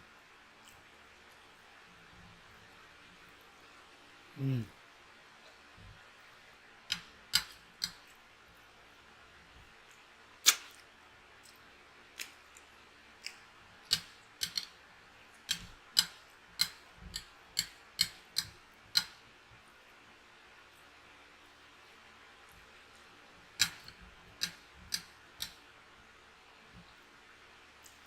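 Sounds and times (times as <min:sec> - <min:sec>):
chewing mouth clicks and smacks: 0:09.8 - 0:13.5.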